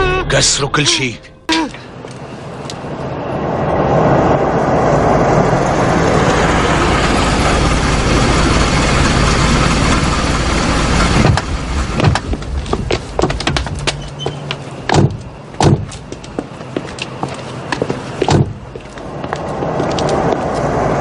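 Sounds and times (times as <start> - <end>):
car engines humming: 0.0 - 21.0.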